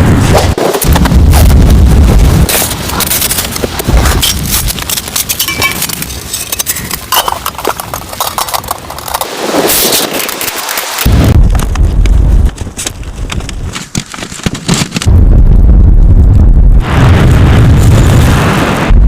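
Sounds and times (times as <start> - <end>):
crunching and clicking: 0.6 - 15.2.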